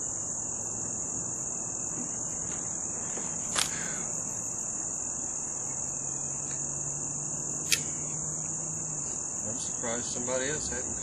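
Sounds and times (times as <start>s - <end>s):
crickets chirping: 0.0s - 11.0s
sharp click: 7.6s - 8.0s.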